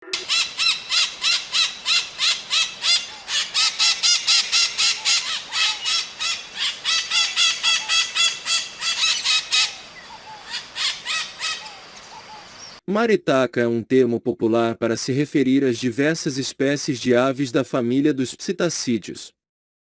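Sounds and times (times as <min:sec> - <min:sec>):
parrots squawking: 0:00.1 - 0:12.6.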